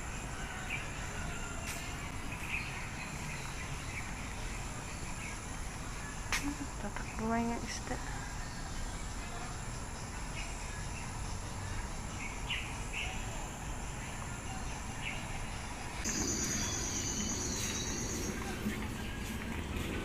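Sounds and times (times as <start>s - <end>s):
outdoor background noise: 0.0s - 20.0s
bird chirps: 8.6s - 19.9s.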